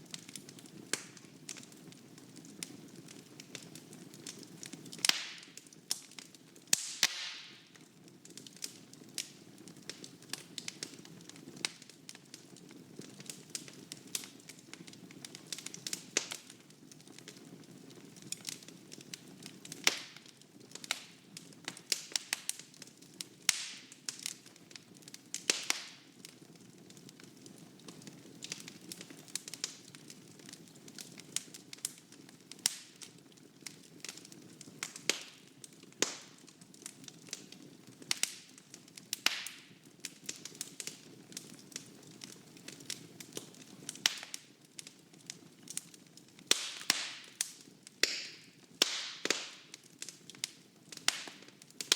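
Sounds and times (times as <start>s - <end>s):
fire flame rumbling: 0.0s - 7.0s
logs crackling and popping: 0.0s - 51.9s.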